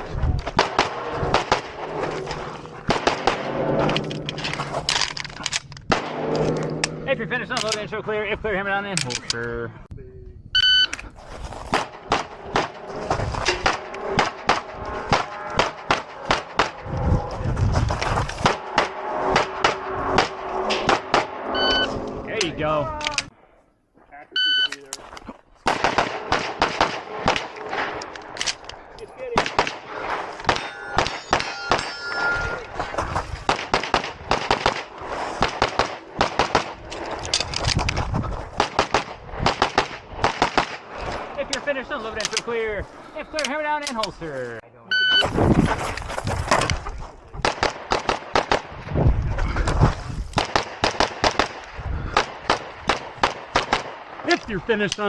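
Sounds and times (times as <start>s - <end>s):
shot timer beep: 10.6s - 10.9s, 21.6s - 22.0s, 24.4s - 24.7s
pistol shots: 25.6s - 28.0s, 33.5s - 36.8s, 50.4s - 54.2s.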